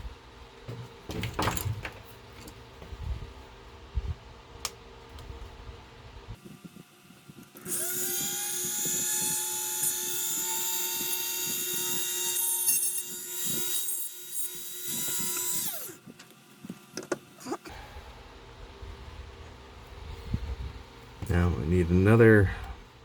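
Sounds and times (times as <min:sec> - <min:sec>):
small electric drill whining: 0:07.3 - 0:18.4.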